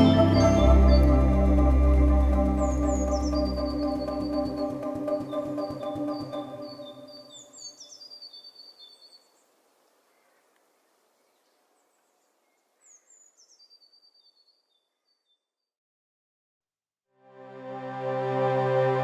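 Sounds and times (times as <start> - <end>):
background music: 0.0 - 7.2, 17.4 - 19.0
small bird chirping: 2.3 - 10.5.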